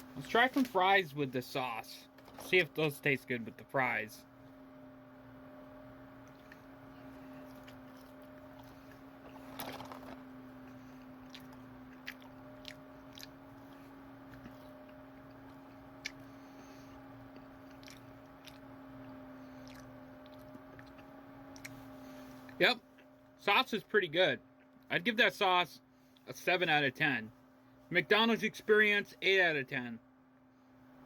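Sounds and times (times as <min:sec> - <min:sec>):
steady low hum: 0:00.0 - 0:31.0
person chewing crunchy fries: 0:06.2 - 0:16.4, 0:17.1 - 0:23.1.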